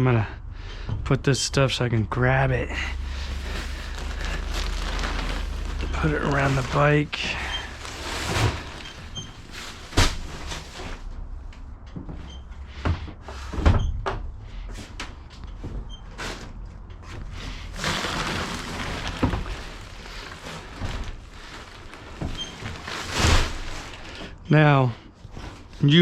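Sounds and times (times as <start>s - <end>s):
bags rustling: 2.7s - 11.1s, 17.4s - 24.3s.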